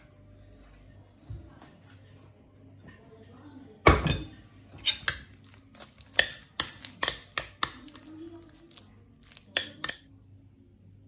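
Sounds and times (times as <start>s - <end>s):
utensils clinking against dishes: 4.0s - 10.1s.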